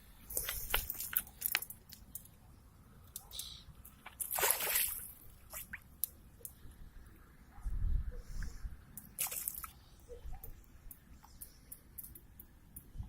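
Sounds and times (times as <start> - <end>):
water sloshing and dripping: 3.8 - 6.6, 9.0 - 10.6
small clicks: 10.4 - 13.0.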